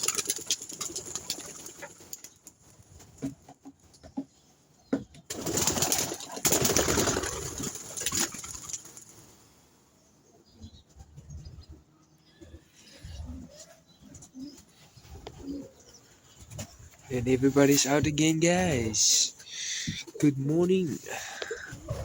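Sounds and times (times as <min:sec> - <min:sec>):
pigeon wings flapping: 0:00.0 - 0:02.6, 0:05.3 - 0:09.1
pigeons clicking and knocking: 0:00.0 - 0:09.1.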